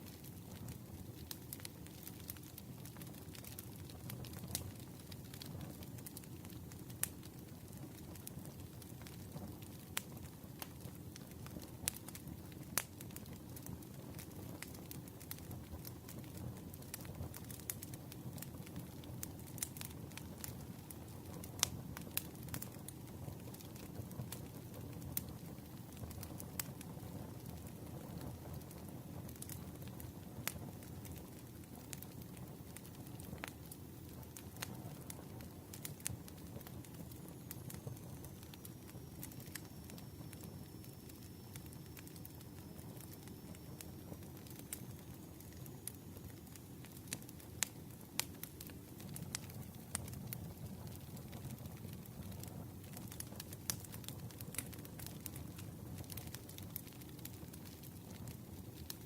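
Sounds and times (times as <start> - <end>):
campfire low rumble: 0.0 - 59.0
fire crackles and pops: 0.0 - 59.0
sharp pops of burning wood: 30.5 - 59.0.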